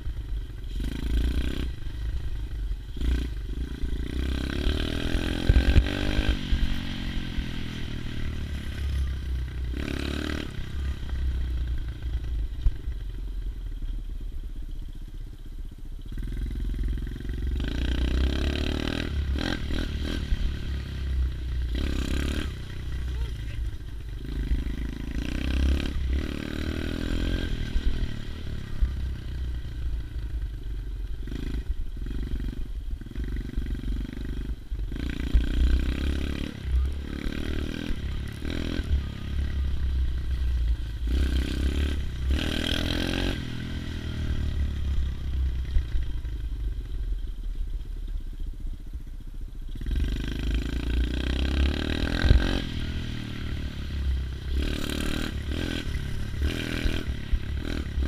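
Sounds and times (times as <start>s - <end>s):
motorbike engine revving: 0.6s - 12.8s, 16.1s - 46.4s, 49.7s - 58.0s.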